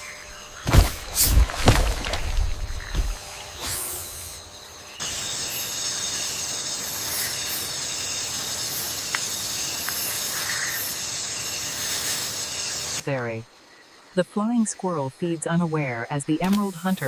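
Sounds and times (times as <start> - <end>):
steady hiss: 2.8 - 13.0.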